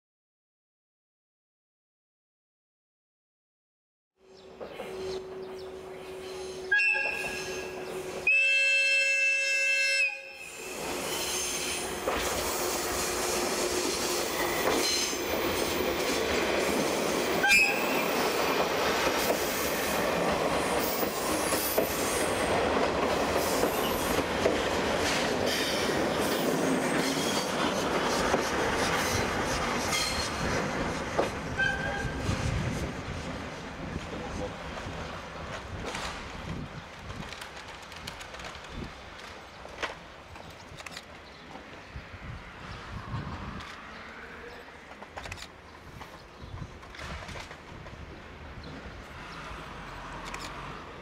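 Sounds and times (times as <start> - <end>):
train rolling on rails: 4.2 - 51.0
train horn blast: 4.8 - 10.7, 17.4 - 18.0, 31.5 - 32.4.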